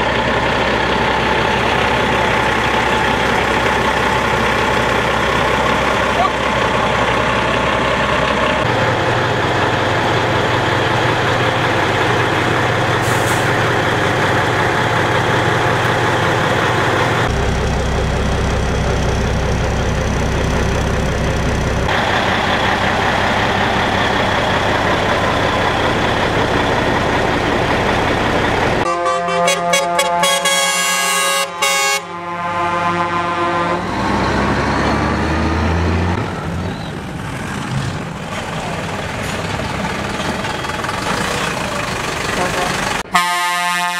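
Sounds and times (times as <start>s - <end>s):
truck diesel engines rumbling: 0.0s - 43.9s
truck air horn: 28.8s - 34.1s, 42.4s - 43.9s.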